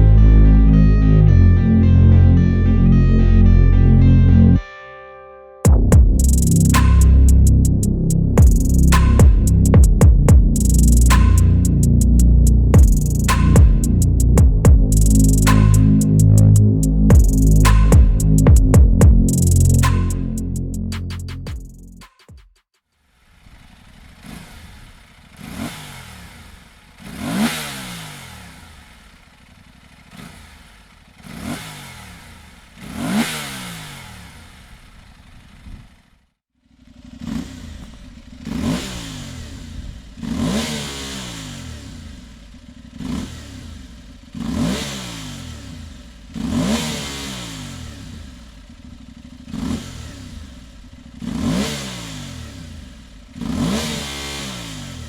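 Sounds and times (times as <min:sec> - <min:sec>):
motorcycle engine throttle blips: 0:05.7 - 0:22.0.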